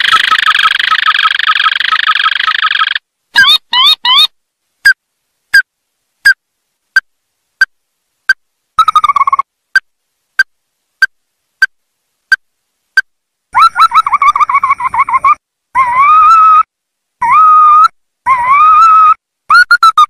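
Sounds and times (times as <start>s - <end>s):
bird calling sharp notes and trills: 0.0s - 4.4s, 8.8s - 11.7s.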